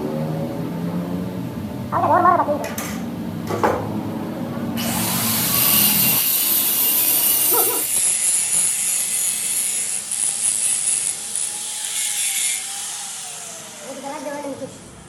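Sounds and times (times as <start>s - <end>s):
power tool low hum: 4.6s - 15.0s
abrasive grinding on metal: 4.8s - 13.3s.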